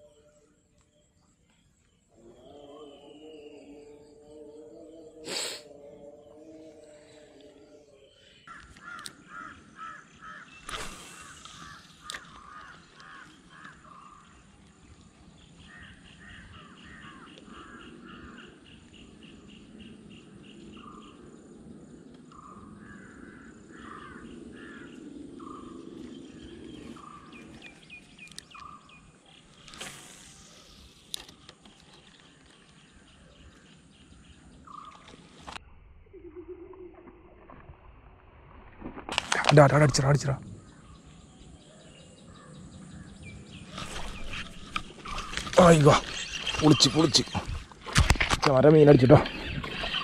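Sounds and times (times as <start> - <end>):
birds calling: 6.8 - 35.6, 39.2 - 50.0.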